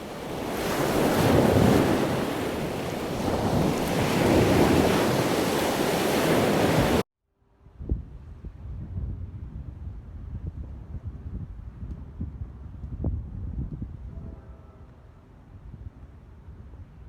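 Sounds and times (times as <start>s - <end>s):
ocean surf washing onto beach: 0.0s - 7.0s
wind buffeting microphone: 0.0s - 7.0s, 7.8s - 14.6s.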